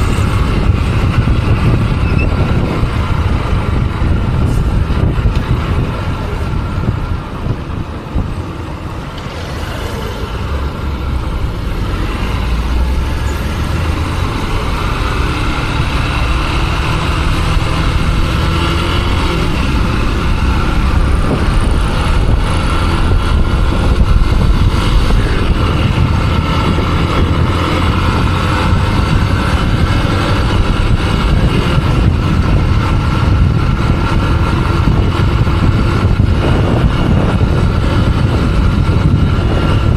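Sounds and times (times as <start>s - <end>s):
road noise: 0.0s - 39.9s
motorcycle engine running: 9.5s - 39.9s.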